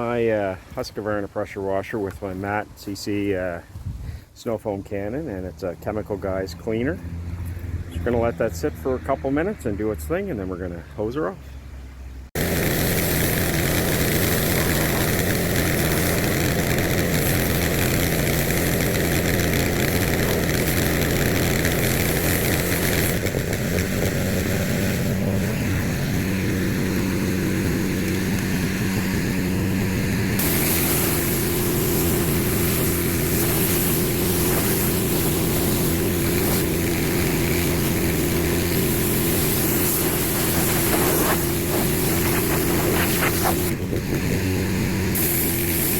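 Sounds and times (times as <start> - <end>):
pressure washer spraying: 12.4 - 45.9.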